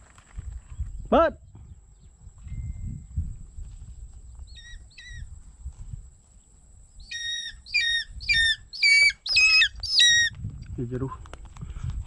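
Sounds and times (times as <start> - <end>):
bird squawking: 7.1 - 10.3.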